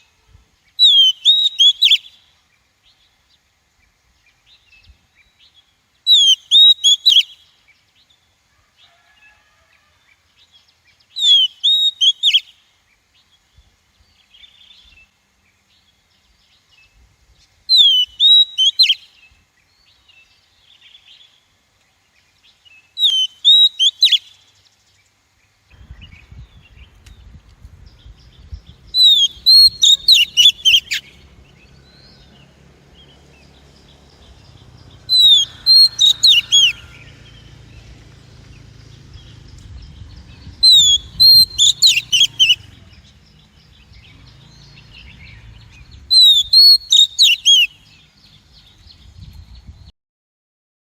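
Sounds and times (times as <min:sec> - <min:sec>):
bird calling with whistled notes: 0:00.0 - 0:03.2, 0:04.3 - 0:08.0, 0:11.0 - 0:12.6, 0:15.8 - 0:21.4, 0:22.5 - 0:24.6, 0:25.8 - 0:49.9
faint low rumble: 0:25.7 - 0:46.2.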